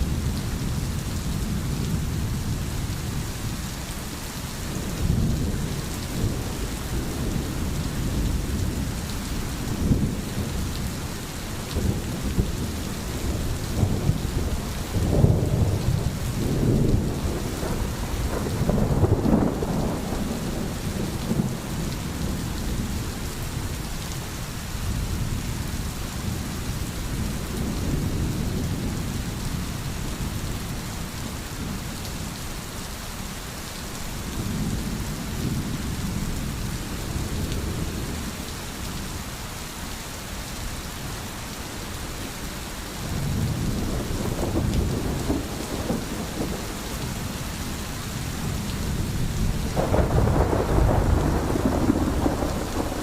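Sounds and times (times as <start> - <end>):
rain hissing: 0.0 - 53.0
low rolling thunder: 4.7 - 23.9, 24.9 - 31.8, 43.0 - 53.0.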